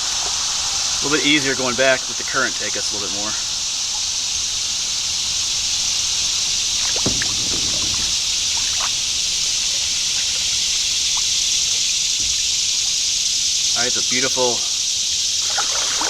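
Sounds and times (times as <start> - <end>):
creek water rushing: 0.0 - 11.8
paddle sloshing water: 2.9 - 11.5.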